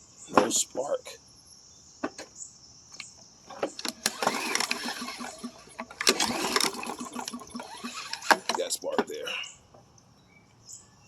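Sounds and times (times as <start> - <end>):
starter rope whirring: 3.8 - 8.7
engine turning over ticking: 3.8 - 8.8.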